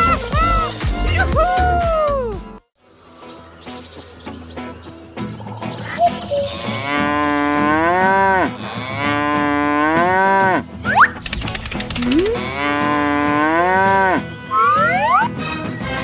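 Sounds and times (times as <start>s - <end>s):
cow mooing: 5.4s - 10.7s, 12.1s - 14.8s.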